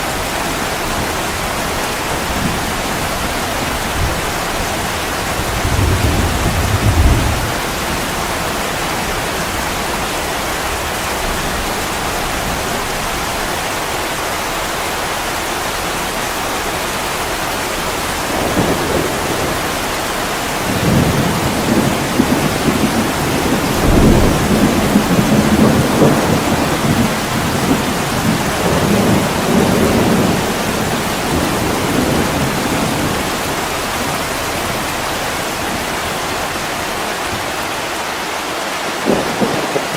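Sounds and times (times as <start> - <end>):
heavy rain on a window: 0.0 - 39.9
rumbling thunder: 0.9 - 10.1, 18.1 - 37.6, 39.0 - 39.9.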